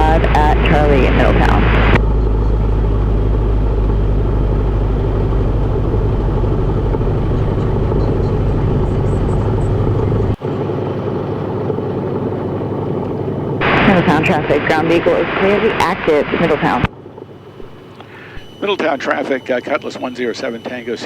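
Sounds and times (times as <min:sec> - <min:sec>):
aircraft engine and propeller: 0:00.0 - 0:21.0.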